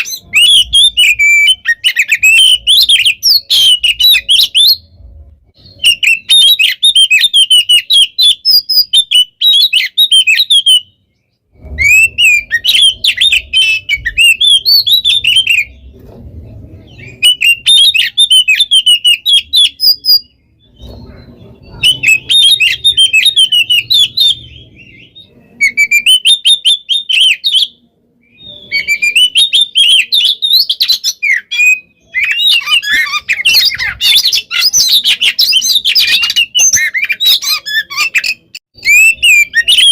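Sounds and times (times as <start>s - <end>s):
bird singing rapid phrases: 0.0s - 39.9s.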